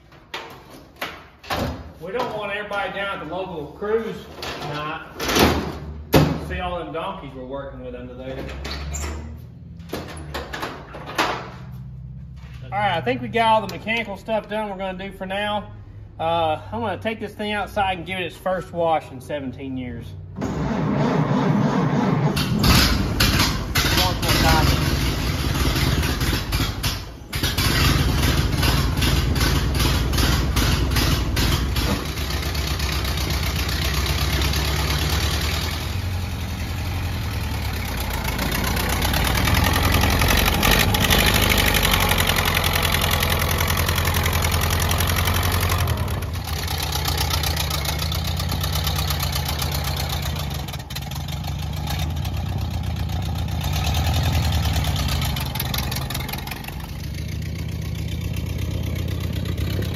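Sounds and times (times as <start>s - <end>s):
car engine running: 20.5s - 59.9s.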